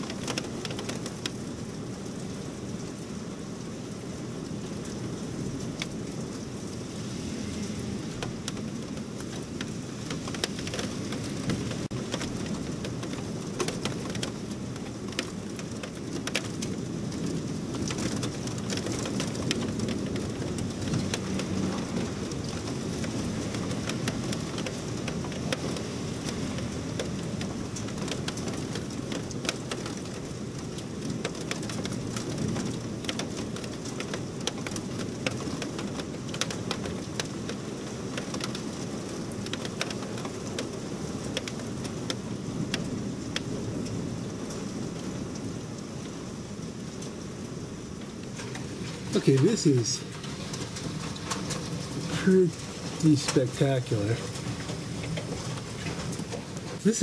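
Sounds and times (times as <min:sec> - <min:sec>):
raindrops ticking on window: 0:00.0 - 0:02.1, 0:08.1 - 0:57.0
heavy rain pouring: 0:00.0 - 0:57.0.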